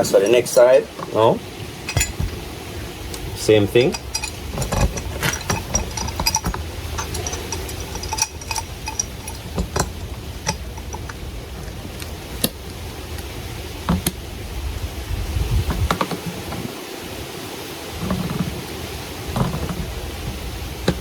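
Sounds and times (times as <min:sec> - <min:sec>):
metal tools clicking on fitting: 0:03.8 - 0:11.2.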